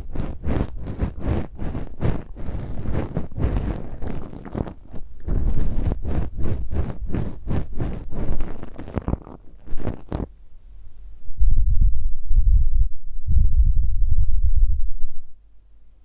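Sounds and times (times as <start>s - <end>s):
ear pick scratching microphone: 0.0s - 10.4s.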